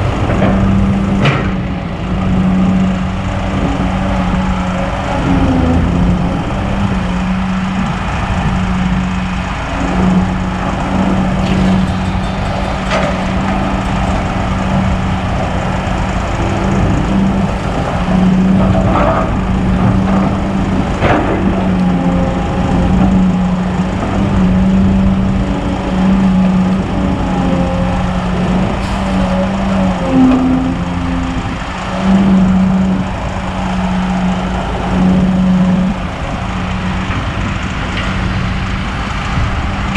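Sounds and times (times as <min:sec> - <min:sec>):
excavator diesel engine running: 0:00.0 - 0:39.9
sharp knocks: 0:11.4 - 0:15.2.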